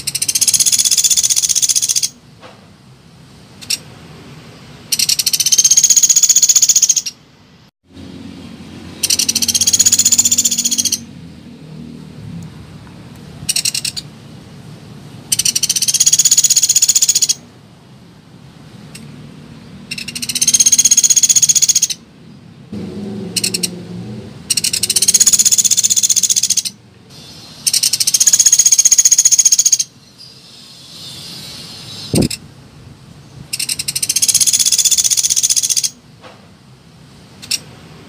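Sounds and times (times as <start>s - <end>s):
woodpecker rattling calls: 0.0s - 2.2s, 4.9s - 7.2s, 9.0s - 11.1s, 13.5s - 14.1s, 15.3s - 17.4s, 19.9s - 22.0s, 23.4s - 23.7s, 24.5s - 32.4s, 33.5s - 36.0s.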